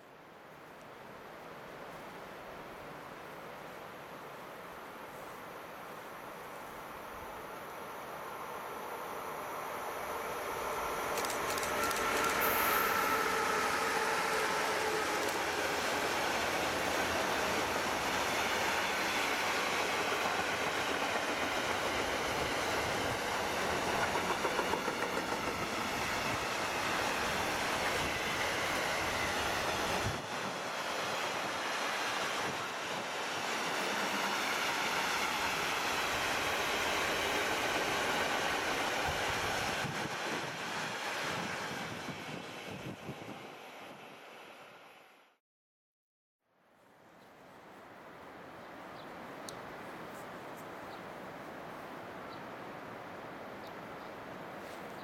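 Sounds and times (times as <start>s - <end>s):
freight wagons rumbling on rails: 11.1s - 15.5s.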